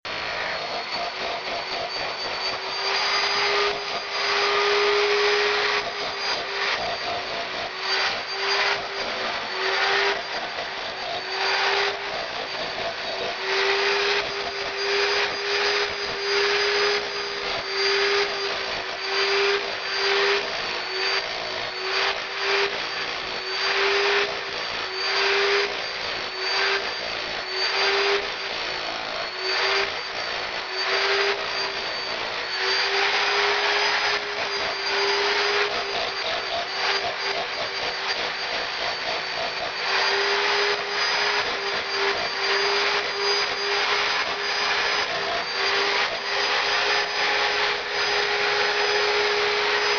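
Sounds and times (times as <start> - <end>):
power tool stripping plaster: 0.1 - 49.9.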